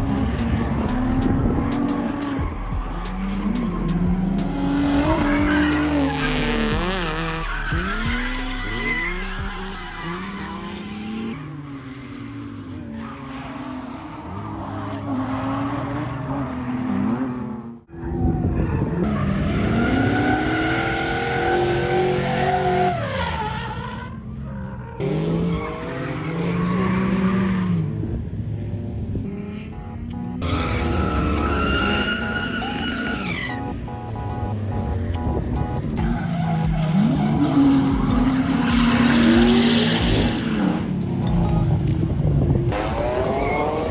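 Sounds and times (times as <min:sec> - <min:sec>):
tyre squeal: 0:00.0 - 0:10.6, 0:30.4 - 0:33.8
car engine revving hard: 0:00.0 - 0:18.2, 0:18.8 - 0:24.1, 0:30.4 - 0:43.9.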